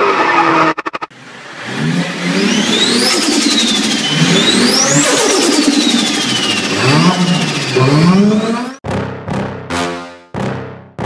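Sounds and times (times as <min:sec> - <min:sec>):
car engine revving: 0:00.0 - 0:09.8
tyre squeal: 0:02.4 - 0:08.8
high whine: 0:02.4 - 0:10.0.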